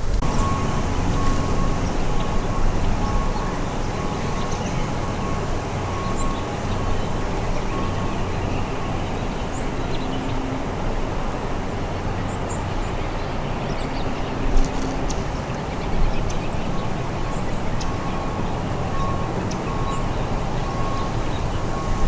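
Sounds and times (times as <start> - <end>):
wind rushing through woods: 0.0 - 14.5, 15.2 - 22.0
faint high bird chirps: 0.2 - 9.7.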